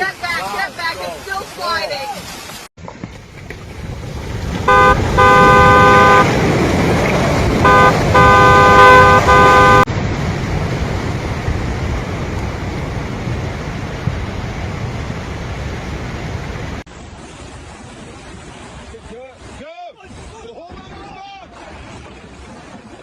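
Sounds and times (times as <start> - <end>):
vehicle horn honking: 4.7 - 6.3, 7.6 - 9.9.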